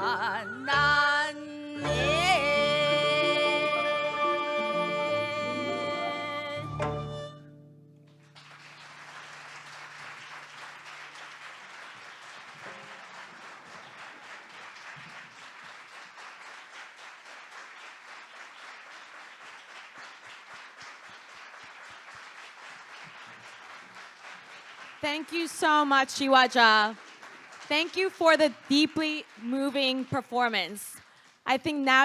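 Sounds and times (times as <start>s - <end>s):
audience applause: 8.1s - 31.5s.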